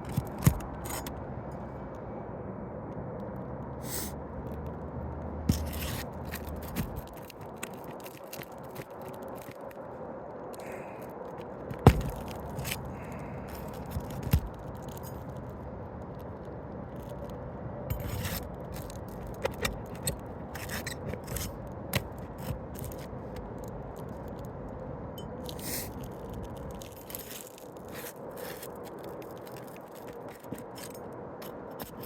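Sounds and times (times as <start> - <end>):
metal tool scraping under shingles: 0.0 - 1.1, 3.8 - 4.1, 5.5 - 8.4, 17.9 - 23.1, 25.5 - 26.0, 26.9 - 32.0.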